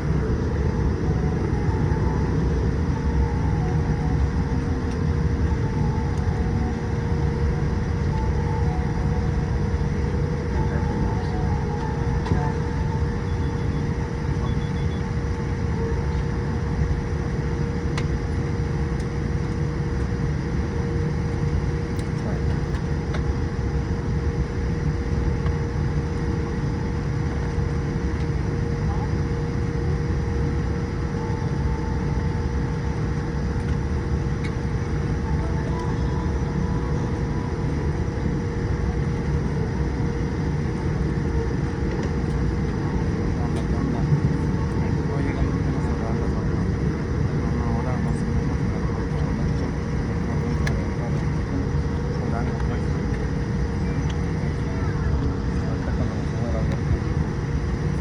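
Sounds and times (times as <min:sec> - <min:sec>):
thin constant hum: 0:00.0 - 0:23.2
aircraft cabin rumble: 0:00.0 - 0:58.0.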